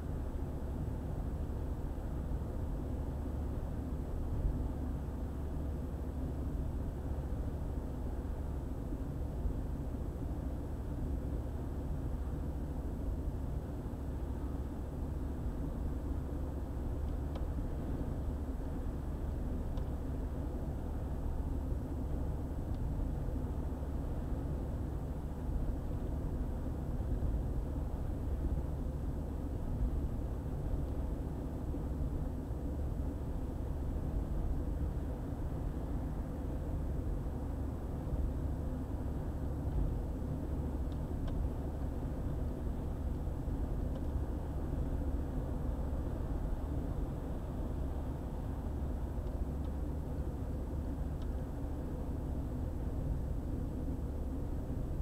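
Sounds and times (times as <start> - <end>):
car driving on highway: 0.0 - 55.0
faint ticks: 17.0 - 17.5, 19.7 - 20.0, 43.9 - 44.2, 49.2 - 49.8, 51.2 - 51.4.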